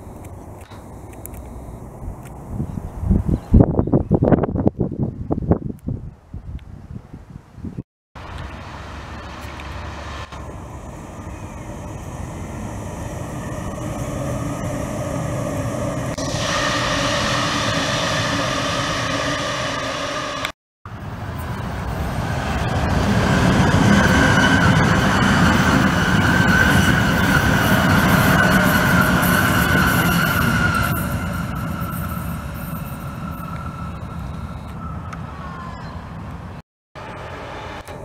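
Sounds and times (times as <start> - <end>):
train high whine: 8.2 - 38.0
trains rumbling past: 8.2 - 38.0.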